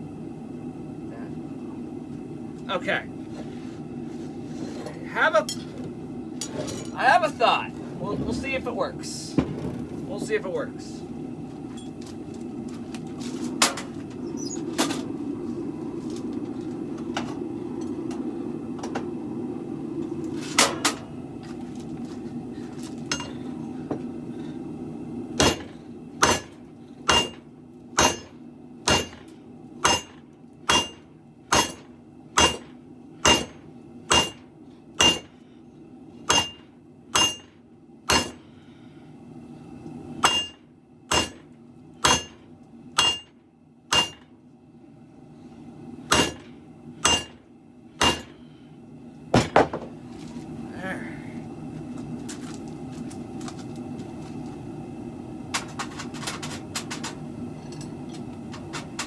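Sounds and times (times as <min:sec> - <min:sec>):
low hum: 0:00.0 - 0:59.0
hammer striking metal on anvil: 0:25.4 - 0:27.4, 0:28.0 - 0:35.3, 0:36.3 - 0:36.6, 0:37.2 - 0:37.5, 0:38.1 - 0:38.4, 0:40.2 - 0:42.4, 0:43.0 - 0:44.3, 0:46.1 - 0:47.4, 0:48.0 - 0:48.4.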